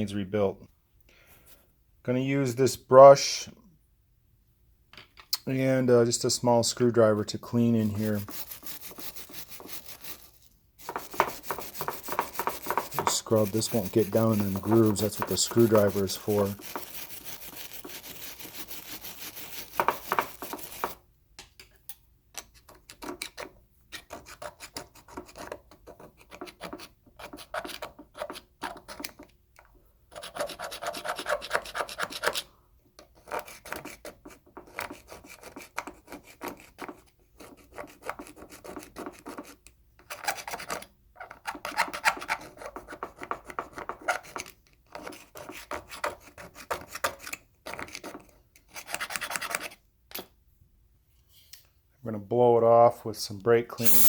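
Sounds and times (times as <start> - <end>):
brush scrubbing metal: 6.3 - 21.0, 53.8 - 54.0
screwdriver scraping metal: 7.4 - 21.0, 53.8 - 54.0.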